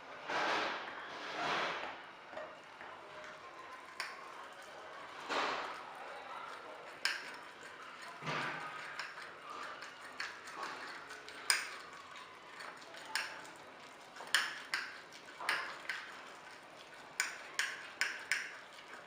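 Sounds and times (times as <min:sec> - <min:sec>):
fork clinking against a ceramic mug: 0:17.2 - 0:18.6.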